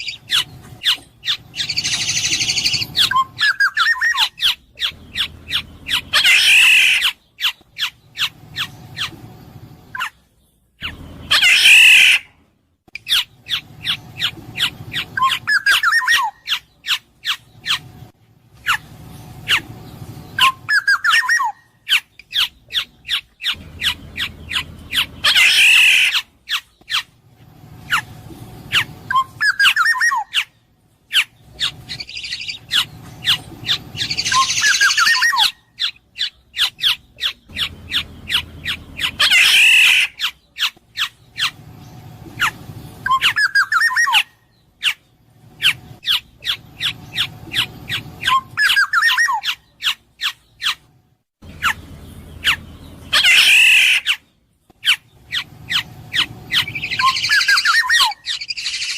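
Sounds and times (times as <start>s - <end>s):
bird raspy squawks: 0.0s - 9.1s, 10.8s - 12.4s, 13.0s - 17.8s, 18.6s - 19.7s, 20.4s - 27.1s, 28.7s - 41.6s, 42.4s - 50.8s, 51.4s - 51.8s, 52.4s - 54.2s, 54.8s - 58.9s
bird whistling calls: 0.0s - 9.2s, 10.8s - 12.3s, 13.0s - 17.8s, 18.6s - 27.1s, 28.7s - 30.5s, 31.1s - 41.6s, 42.4s - 45.0s, 45.6s - 50.8s, 52.4s - 54.2s, 54.8s - 58.9s.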